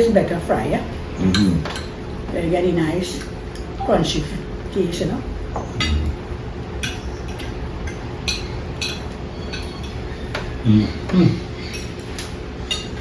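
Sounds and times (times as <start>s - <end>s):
low background hum: 0.0s - 13.0s
cutlery clinking on plates: 6.8s - 10.6s, 11.7s - 13.0s.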